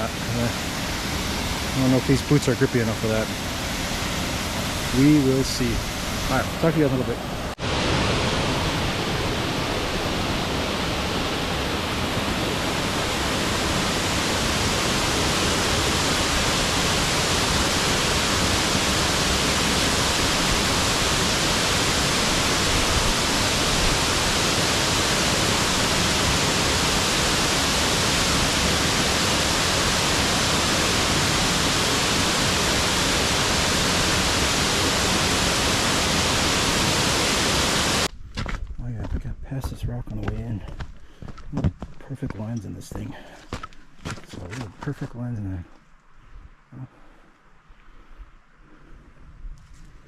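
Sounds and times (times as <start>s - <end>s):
waterfall rushing: 0.0s - 38.1s.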